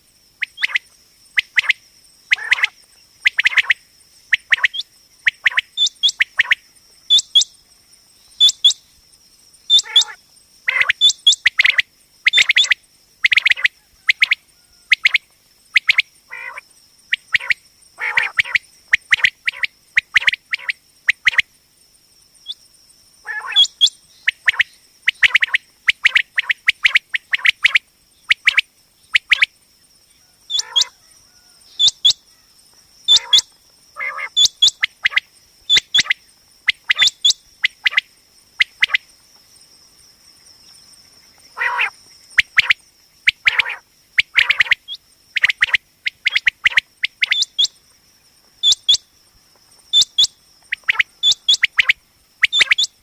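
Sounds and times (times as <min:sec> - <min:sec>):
quail calling: 0:00.4 - 0:00.8, 0:02.3 - 0:03.8, 0:09.7 - 0:15.2, 0:15.8 - 0:16.6, 0:17.2 - 0:21.4, 0:23.2 - 0:27.8, 0:30.3 - 0:32.5, 0:33.1 - 0:38.0, 0:41.6 - 0:47.7, 0:48.6 - 0:49.0, 0:49.9 - 0:53.0.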